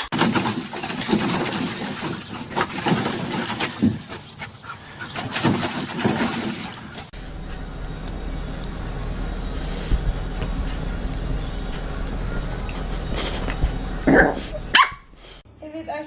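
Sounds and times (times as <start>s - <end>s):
rustling: 0.2s - 15.4s
steady low hum: 7.1s - 15.4s
dog sounds: 9.8s - 15.4s.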